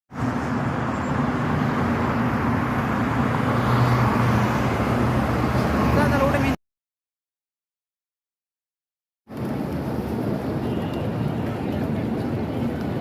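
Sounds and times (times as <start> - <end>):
road traffic noise: 0.1 - 6.6, 9.3 - 13.0.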